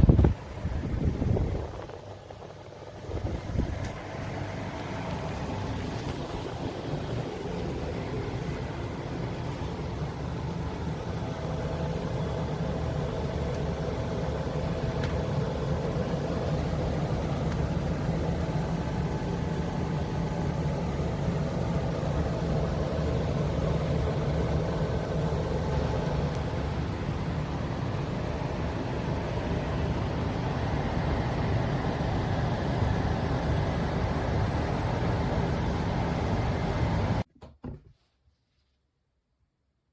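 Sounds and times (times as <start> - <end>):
mechanical hum: 0.0 - 38.8.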